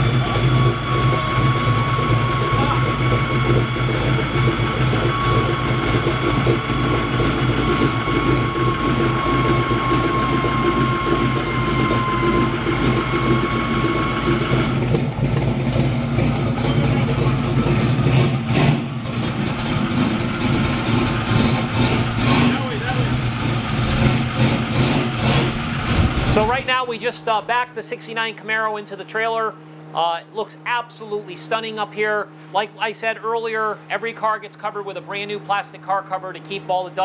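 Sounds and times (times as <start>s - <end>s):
car engine running at low speed: 0.0s - 27.0s
steady high whine: 0.0s - 37.0s.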